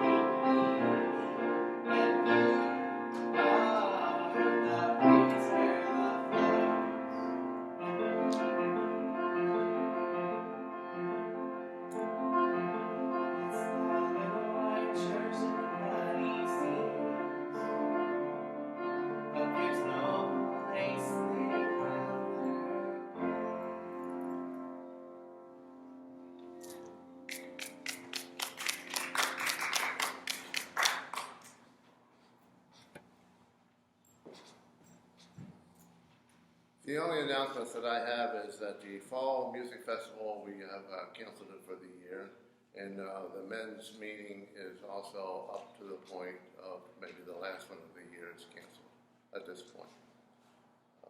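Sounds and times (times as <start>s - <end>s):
slow piano chords: 0.0s - 31.6s.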